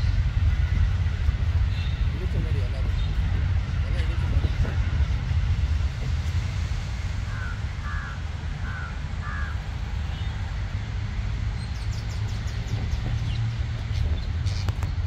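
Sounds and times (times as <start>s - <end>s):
steady low rumble: 0.0s - 15.0s
birds calling harshly: 7.3s - 10.6s, 11.6s - 15.0s.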